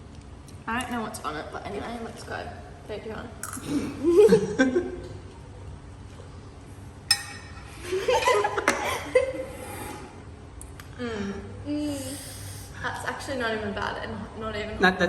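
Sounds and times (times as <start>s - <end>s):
person chuckling and laughing: 7.8s - 9.6s.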